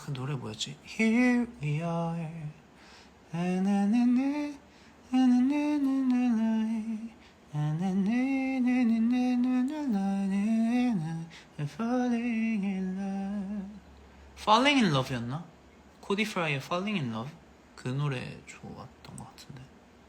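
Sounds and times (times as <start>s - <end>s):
man humming a melody: 3.3s - 13.8s.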